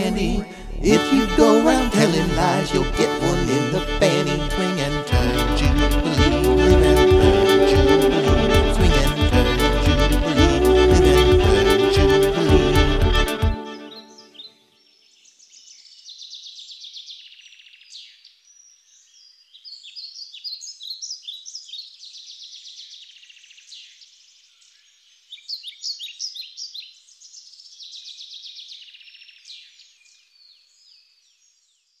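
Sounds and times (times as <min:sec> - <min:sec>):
birds singing: 0:13.7 - 0:32.0.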